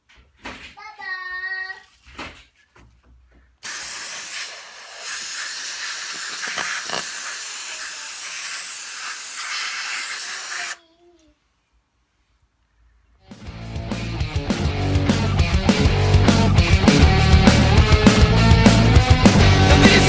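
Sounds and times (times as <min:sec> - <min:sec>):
aerosol spray hissing: 0:03.6 - 0:10.8.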